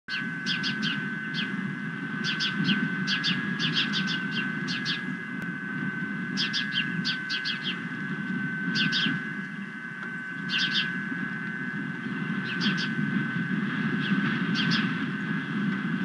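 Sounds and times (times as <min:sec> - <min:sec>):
bird chirping: 0:00.1 - 0:01.6, 0:02.2 - 0:05.1, 0:06.3 - 0:07.9, 0:08.7 - 0:11.0, 0:12.4 - 0:13.0, 0:14.0 - 0:15.0
steady high whine: 0:00.1 - 0:16.0.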